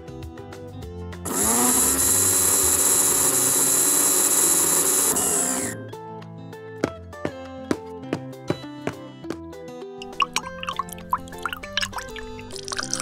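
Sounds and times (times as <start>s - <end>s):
blender motor whining: 1.3s - 5.8s
background music: 4.6s - 13.0s.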